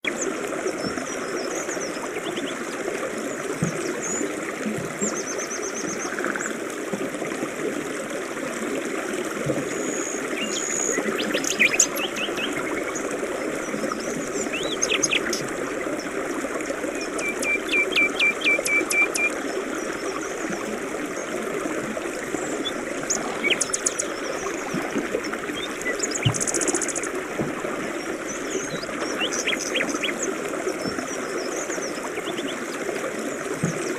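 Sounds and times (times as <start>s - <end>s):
birds chirping and trilling: 9.7s - 16.2s, 16.9s - 20.4s, 22.3s - 27.2s, 27.9s - 32.7s.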